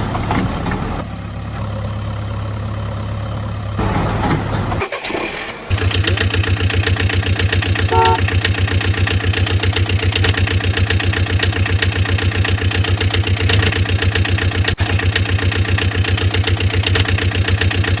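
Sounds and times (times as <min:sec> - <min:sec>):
diesel engine running: 0:00.0 - 0:18.0
short pitched tone: 0:07.9 - 0:08.3.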